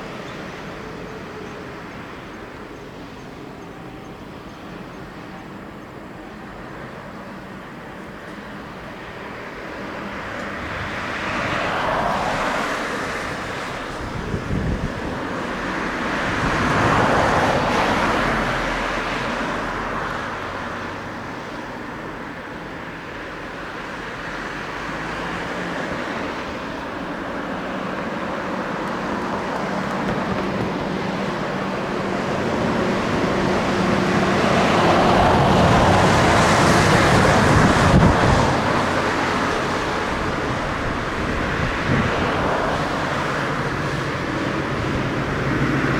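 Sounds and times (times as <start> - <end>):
jet engine noise: 0.0 - 45.9
wind buffeting microphone: 9.7 - 21.3, 25.2 - 45.9.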